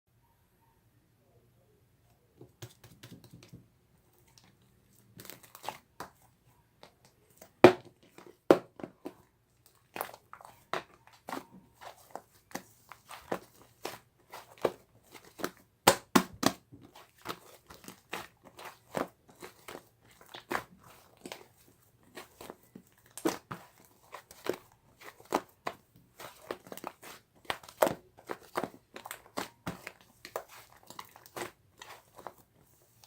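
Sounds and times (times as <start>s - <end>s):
slime squishing with crackling pops: 9.9s - 32.4s.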